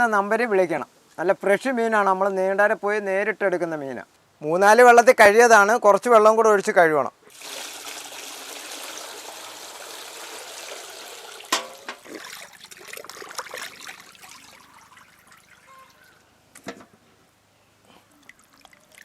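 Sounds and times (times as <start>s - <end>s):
water poured and splashing: 7.3s - 16.2s, 18.1s - 19.0s.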